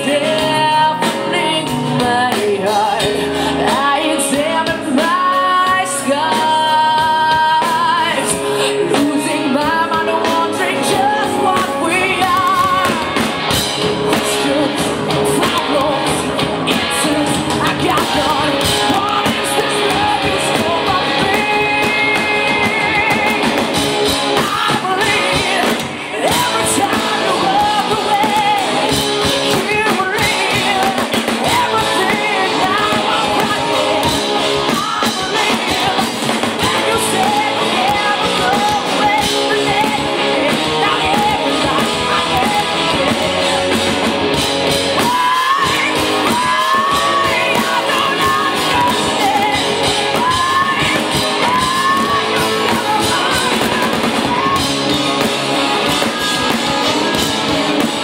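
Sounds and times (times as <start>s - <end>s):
drums: 0.0s - 58.0s
electric guitar: 0.0s - 58.0s
woman singing and shouting: 3.6s - 13.2s, 24.4s - 43.7s, 45.0s - 57.6s.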